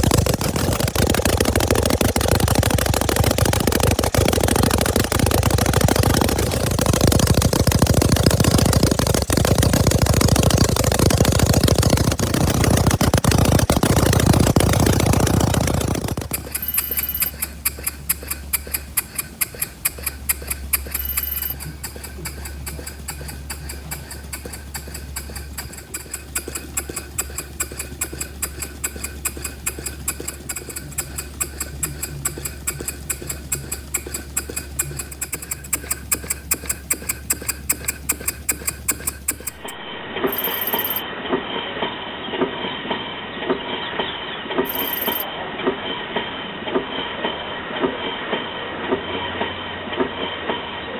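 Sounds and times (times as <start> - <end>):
small model engine clicking: 0.0 - 41.0, 44.6 - 45.3
low hum: 0.0 - 41.3.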